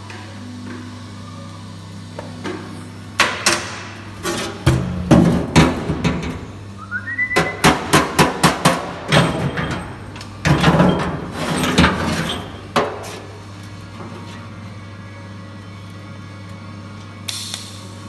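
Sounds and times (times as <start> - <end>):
steady electrical hum: 0.0 - 18.0
hammer knocking on sheet metal: 7.4 - 9.0.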